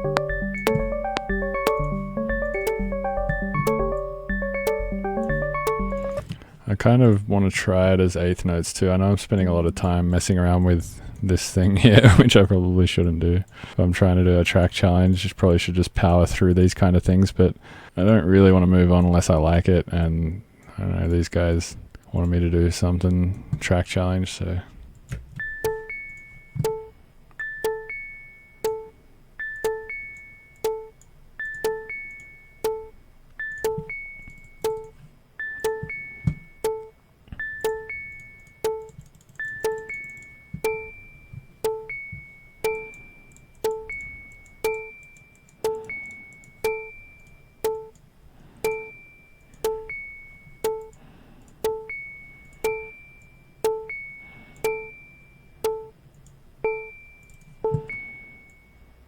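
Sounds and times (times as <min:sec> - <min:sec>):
looping bell-like synth notes: 0:00.0 - 0:06.3, 0:09.6 - 0:10.1, 0:25.5 - 0:48.0, 0:48.7 - 0:50.9
sharp clicks: 0:33.6 - 0:35.0, 0:37.6 - 0:40.9.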